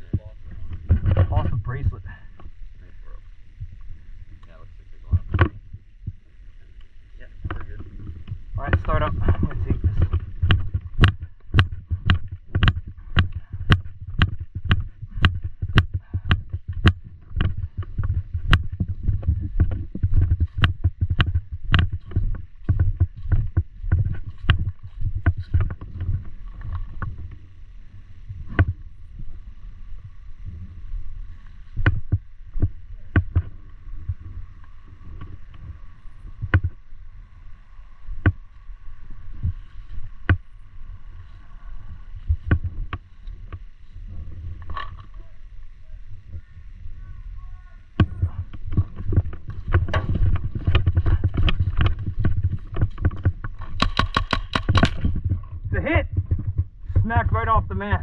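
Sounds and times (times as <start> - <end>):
steady low rumble: 0.0 - 58.0
paintball markers firing: 53.7 - 55.1.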